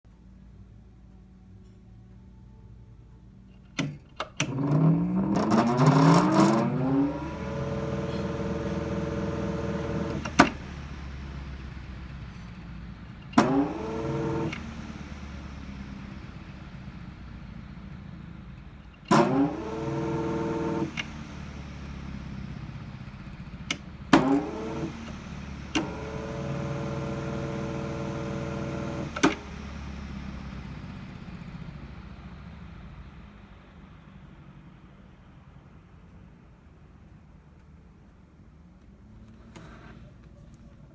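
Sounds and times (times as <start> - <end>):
steady low hum: 0.1 - 37.1
fan motor hum: 3.8 - 34.0
fan switch click: 8.0 - 10.8, 28.9 - 29.6.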